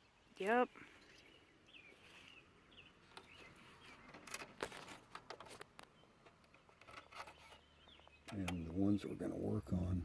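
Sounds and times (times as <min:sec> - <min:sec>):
faint bird chirps: 0:00.0 - 0:04.4, 0:05.8 - 0:09.2.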